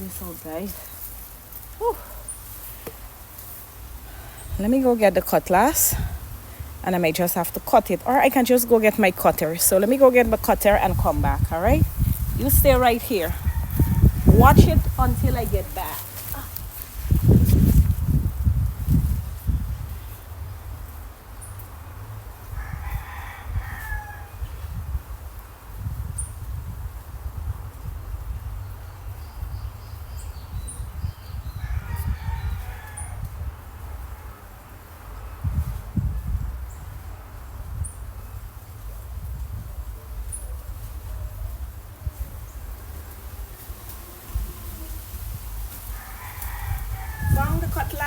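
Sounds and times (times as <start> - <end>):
rooster crowing: 13.2 - 14.6, 22.5 - 24.6, 31.6 - 33.3, 45.9 - 48.0.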